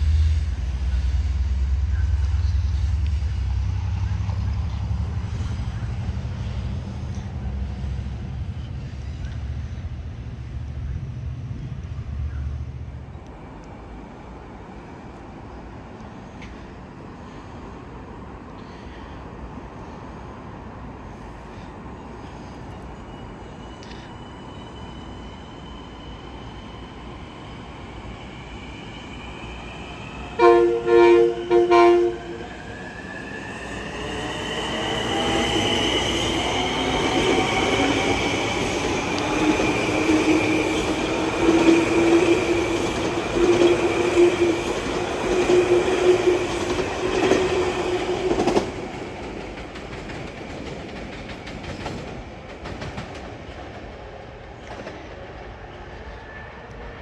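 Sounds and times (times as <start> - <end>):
train rail noise: 0.0 - 57.0
high wheel squeal: 22.3 - 30.4
train horn blasts: 30.4 - 32.5.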